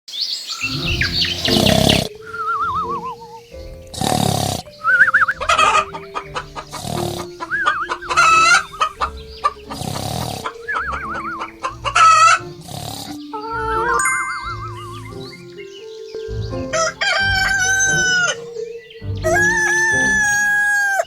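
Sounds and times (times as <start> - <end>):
chickens clucking: 0.6 - 21.0
light background music: 0.6 - 21.0
rooster crowing: 16.8 - 18.5, 19.2 - 21.0.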